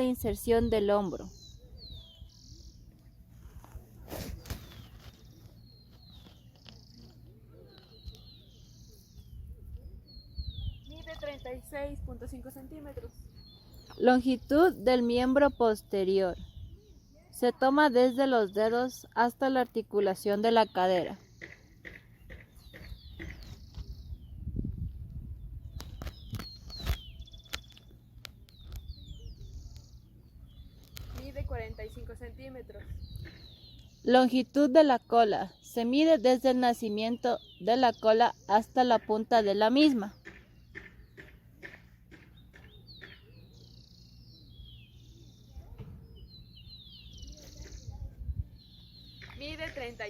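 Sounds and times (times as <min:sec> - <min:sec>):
small birds chirping: 0:00.0 - 0:50.0.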